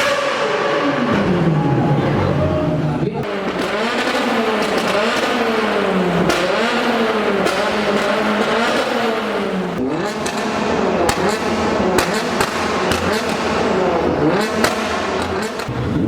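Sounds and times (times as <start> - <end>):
car engine revving: 0.0 - 16.0
sharp clicks or pops: 10.0 - 13.4.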